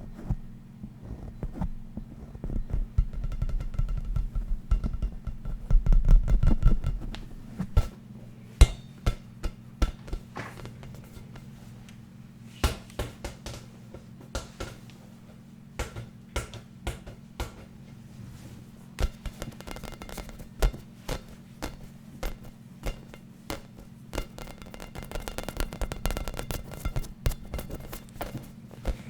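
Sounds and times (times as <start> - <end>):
steady low hum: 0.0 - 29.0
tapping on hard object: 2.4 - 7.2, 8.6 - 11.5, 15.8 - 17.7, 19.0 - 29.0.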